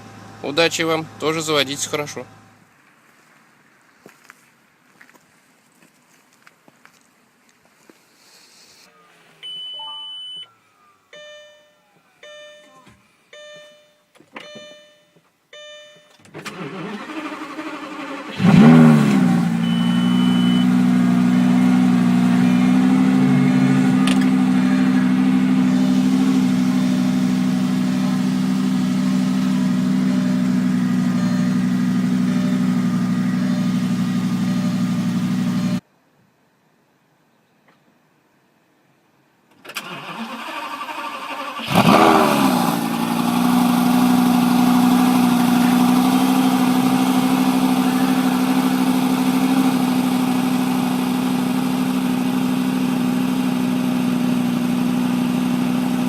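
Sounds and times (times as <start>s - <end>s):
car engine revving and idling: 0.0s - 2.6s, 16.6s - 35.8s, 41.6s - 56.0s
dashboard beep: 8.9s - 16.2s, 19.6s - 20.8s, 31.2s - 31.6s
short warning chimes: 8.9s - 16.2s, 19.6s - 20.8s, 30.0s - 32.8s
starter motor cranking: 16.4s - 19.3s.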